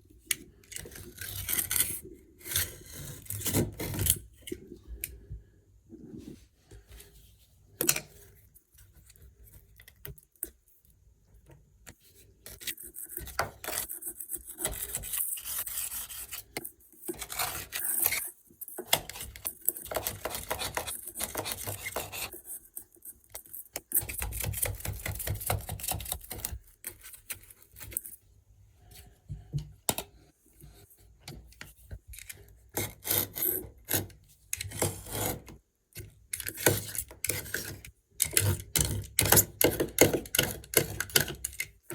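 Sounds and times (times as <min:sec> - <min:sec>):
blade scraping sealant: 0:32.8 - 0:35.6.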